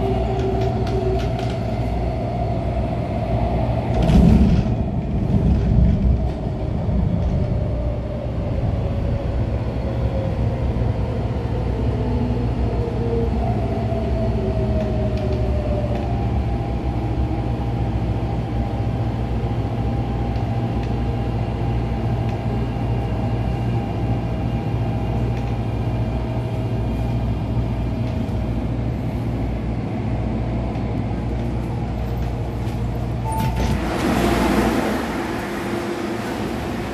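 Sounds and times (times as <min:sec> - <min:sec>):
low hum of train equipment: 0:00.0 - 0:36.9
short beep: 0:33.2 - 0:33.7.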